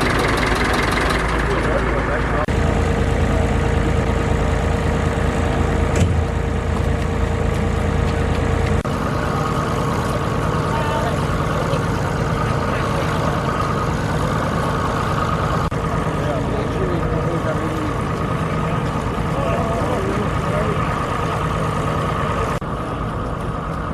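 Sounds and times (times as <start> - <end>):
tractor engine idling: 0.0 - 23.9.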